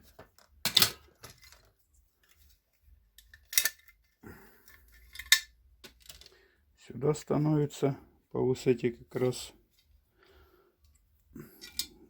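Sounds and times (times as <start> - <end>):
metal parts clinking: 3.2 - 4.0, 4.7 - 6.4, 11.6 - 12.0.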